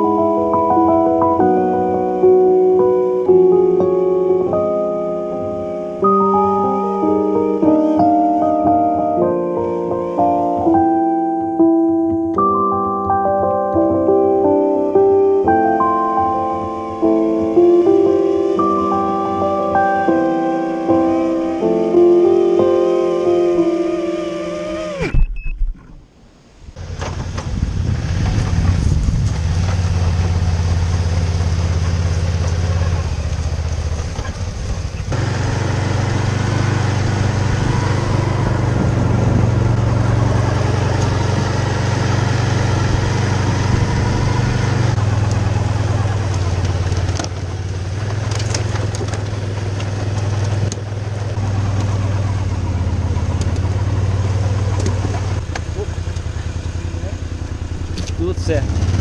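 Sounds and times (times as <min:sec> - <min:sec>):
wind: 0:00.0 - 0:59.0
drone motors and propellers: 0:20.7 - 0:26.1.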